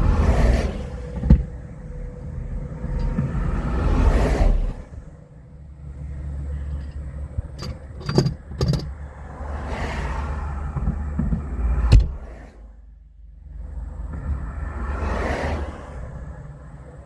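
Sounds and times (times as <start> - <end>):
vehicle engine rumbling: 4.8 - 9.3
sharp metallic clicks: 6.8 - 8.9.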